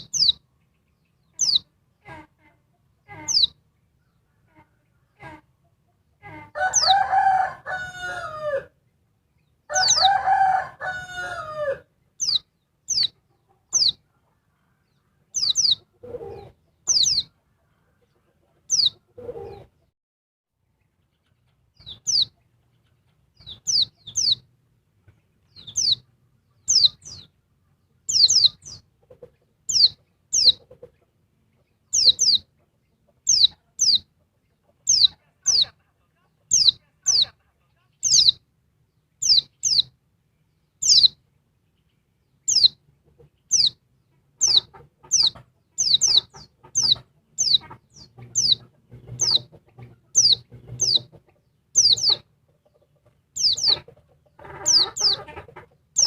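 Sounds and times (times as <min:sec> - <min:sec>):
bird chirping: 0:00.0 - 0:19.9, 0:20.6 - 0:56.0
rooster crowing: 0:06.4 - 0:08.8, 0:09.7 - 0:11.9.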